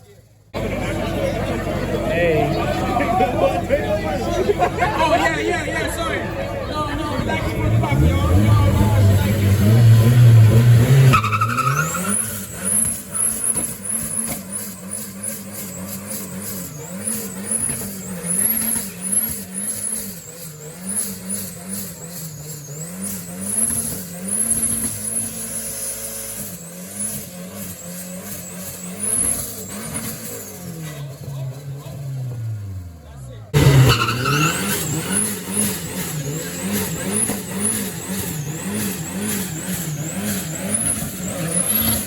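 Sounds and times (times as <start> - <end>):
car engine revving: 0.2 - 42.0
tyre squeal: 7.8 - 31.6, 33.6 - 42.0.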